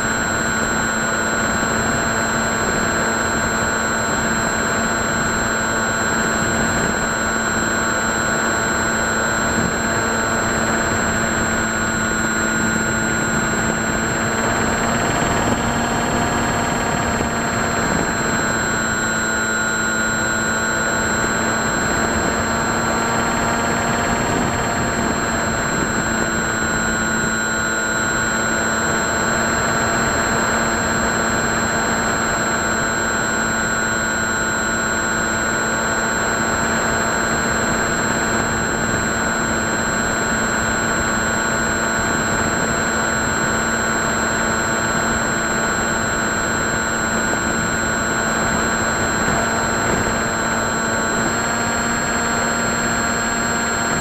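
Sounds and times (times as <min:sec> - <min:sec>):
model plane motor droning: 0:00.0 - 0:54.0.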